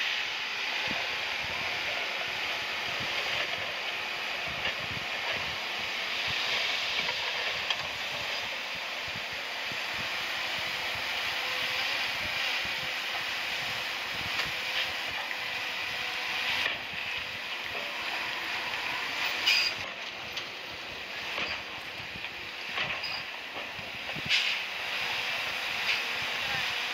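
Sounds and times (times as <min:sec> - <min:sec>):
heavy machinery hissing: 0:00.0 - 0:26.9.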